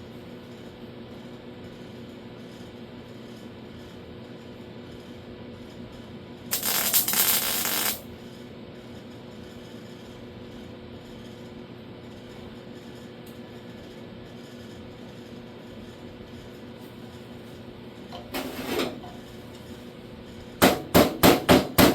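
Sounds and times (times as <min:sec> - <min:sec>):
low shop hum: 0:05.6 - 0:08.9
welding burst: 0:06.5 - 0:08.1.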